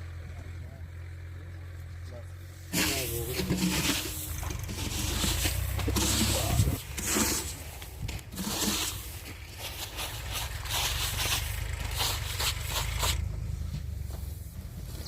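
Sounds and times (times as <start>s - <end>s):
low steady rumble: 0.0s - 15.0s
rice grain rustling: 2.7s - 13.2s.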